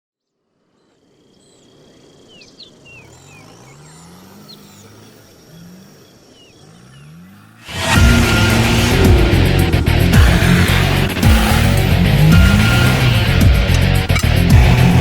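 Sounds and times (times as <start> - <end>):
birds chirping: 0.8 - 15.0
distant engine surging: 3.0 - 15.0
low rumble: 7.7 - 15.0.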